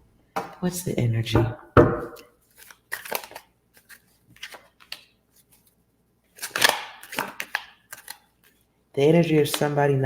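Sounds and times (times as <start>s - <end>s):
cards rustling and flicking: 2.4s - 8.6s, 9.4s - 10.0s.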